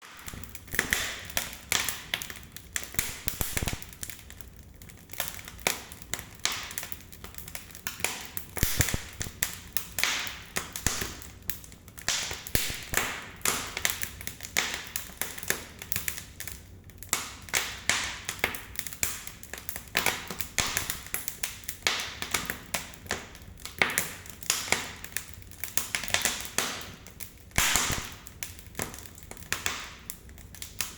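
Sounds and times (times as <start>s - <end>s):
firewood crackling and popping: 0.0s - 30.9s
soft fire hiss: 2.3s - 4.6s, 8.5s - 13.3s, 27.5s - 28.4s.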